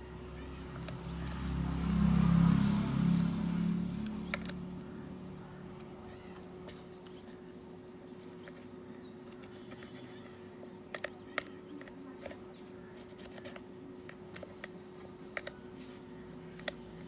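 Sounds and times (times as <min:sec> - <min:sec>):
steady electrical hum: 0:00.0 - 0:17.0
small hard objects clicking: 0:08.5 - 0:15.6.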